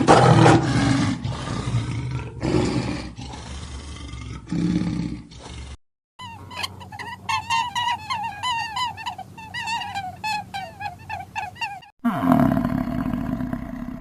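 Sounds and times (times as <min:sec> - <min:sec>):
low drawn-out animal call: 0:04.6 - 0:14.0
animal chirping calls: 0:06.2 - 0:11.9.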